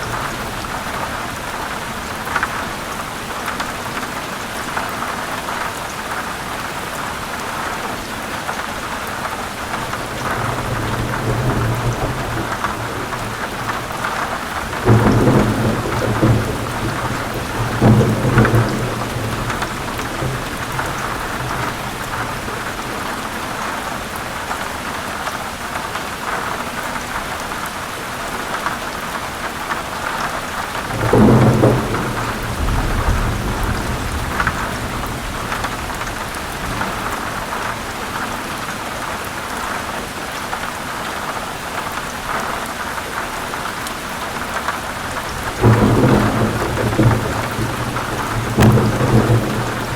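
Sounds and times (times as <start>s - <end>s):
heavy rain: 0.0s - 49.9s
thunder rumbling: 9.7s - 23.6s, 30.6s - 38.3s, 45.0s - 49.9s.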